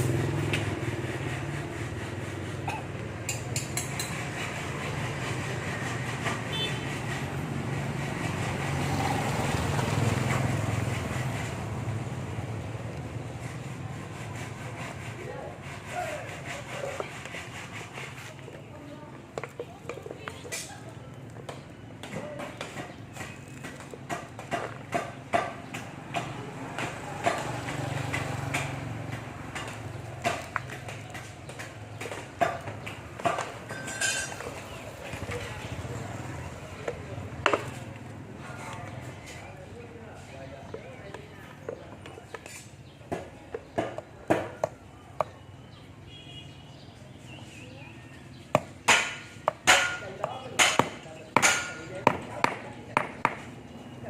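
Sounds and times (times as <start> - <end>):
tools striking metal: 48.6 - 53.4.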